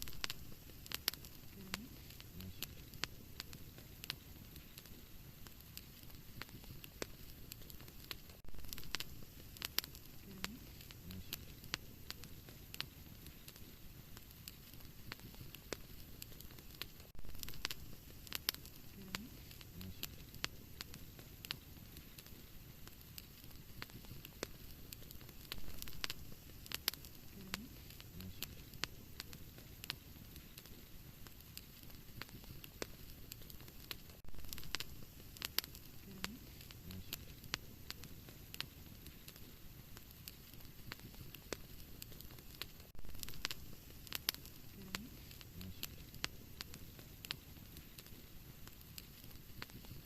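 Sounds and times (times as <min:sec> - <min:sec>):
soft low fire rumble: 0:00.0 - 0:50.0
wood fire crackling and popping: 0:00.0 - 0:50.0.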